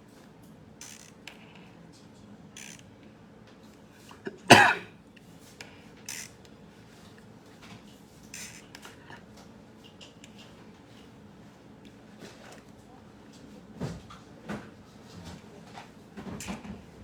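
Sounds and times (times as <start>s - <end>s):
person coughing: 4.2s - 4.9s.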